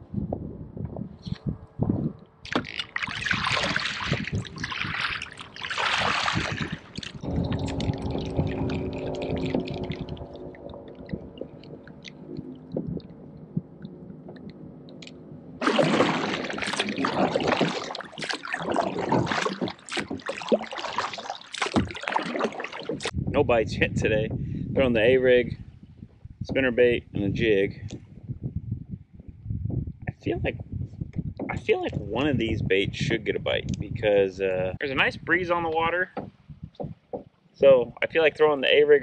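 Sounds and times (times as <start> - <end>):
low steady hum: 0.0 - 36.8
water splashing against kayak: 2.4 - 14.6, 15.6 - 23.2
paddle swishes: 15.6 - 23.2.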